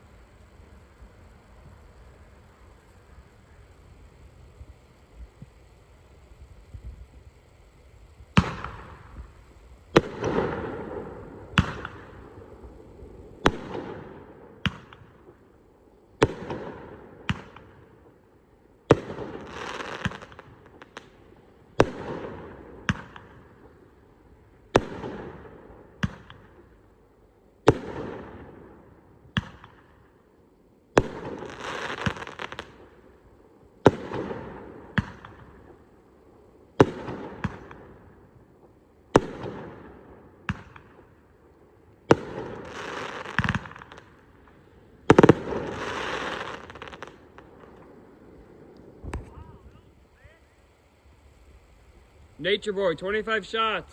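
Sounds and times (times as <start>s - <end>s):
firework bangs: 0.0s - 26.8s, 27.6s - 30.1s, 30.9s - 33.2s, 33.8s - 53.6s
trailing rumble and hiss: 0.0s - 53.9s.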